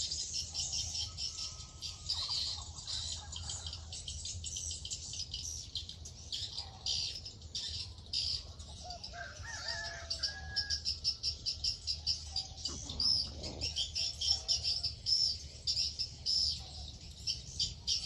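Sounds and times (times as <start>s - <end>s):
small birds chirping: 0.0s - 18.0s
rooster crowing: 9.0s - 10.8s.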